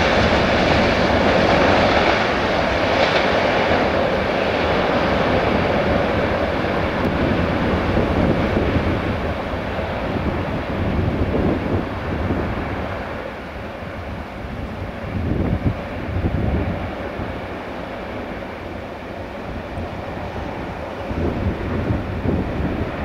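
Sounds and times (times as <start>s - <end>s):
freight train rumbling on rails: 0.0s - 23.0s.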